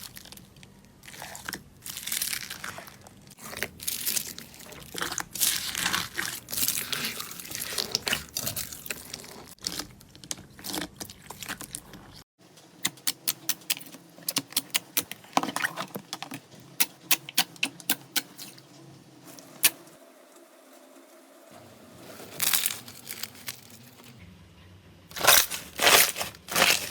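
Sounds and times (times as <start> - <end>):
slime squelching and crackling: 0.0 - 12.2, 12.8 - 19.8, 25.1 - 26.9.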